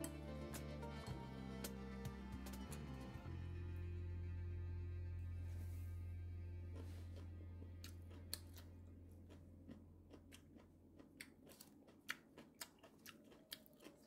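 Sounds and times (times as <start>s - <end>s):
crisp chewing crunches: 6.7s - 14.0s.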